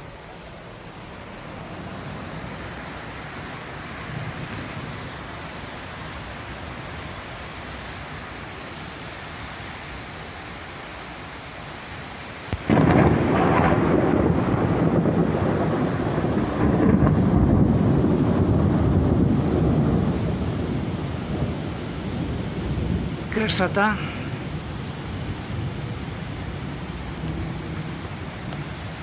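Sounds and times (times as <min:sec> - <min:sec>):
steady rain: 0:00.0 - 0:29.0
thunder rumbling: 0:12.6 - 0:29.0.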